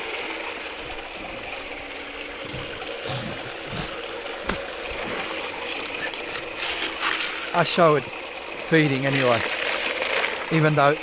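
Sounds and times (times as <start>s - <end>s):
pump humming: 0.0s - 11.0s
water pouring and running: 0.0s - 11.0s.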